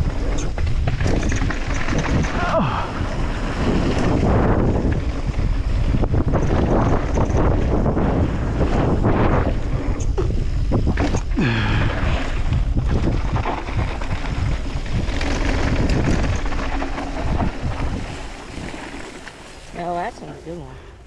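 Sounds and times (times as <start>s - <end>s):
bike tyres and frame rattling: 0.0s - 20.6s
wind buffeting microphone: 0.0s - 20.7s.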